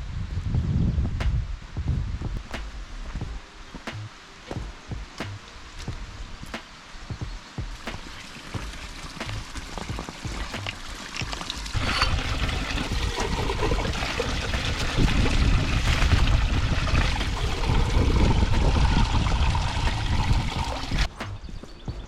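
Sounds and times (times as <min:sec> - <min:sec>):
stream water rushing: 0:07.7 - 0:21.1.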